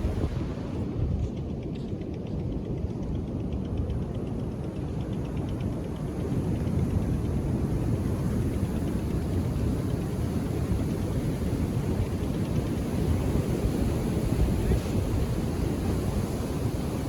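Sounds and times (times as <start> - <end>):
ocean surf rumble: 0.0 - 1.2, 7.2 - 17.0.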